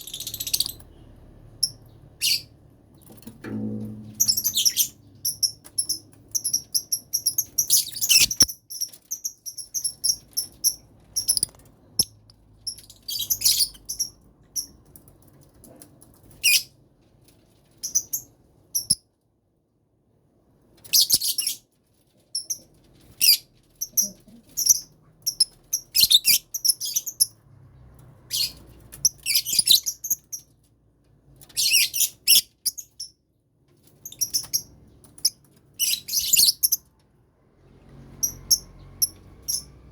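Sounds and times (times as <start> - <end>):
lovebirds chirping: 0.0 - 2.5, 4.2 - 14.7, 23.2 - 27.3, 34.0 - 36.8.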